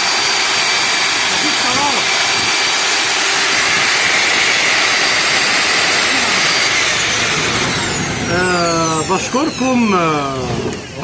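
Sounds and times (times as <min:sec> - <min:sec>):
vacuum cleaner motor whining: 0:00.0 - 0:11.0.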